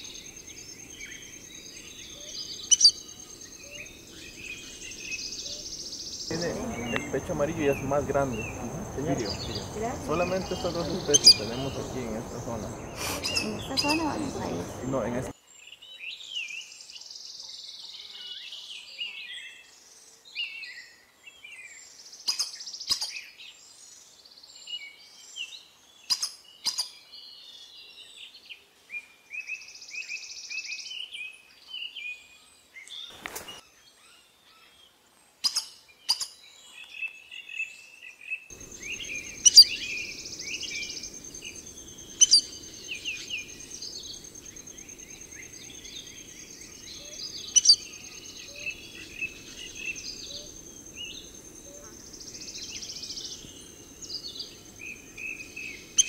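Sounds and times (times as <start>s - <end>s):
wild birds chirping and chattering: 0.0s - 56.0s
bird trills: 2.1s - 5.7s, 6.3s - 15.3s, 38.5s - 56.0s
low rumble: 6.3s - 15.3s
steady high whine: 6.3s - 15.3s.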